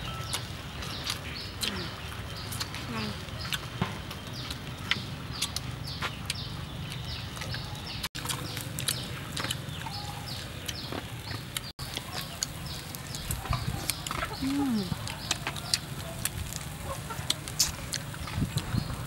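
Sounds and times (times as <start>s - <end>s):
small birds chirping: 0.0s - 19.0s
chewing and lip-smacking: 4.4s - 18.9s
chickens clucking: 8.2s - 19.0s.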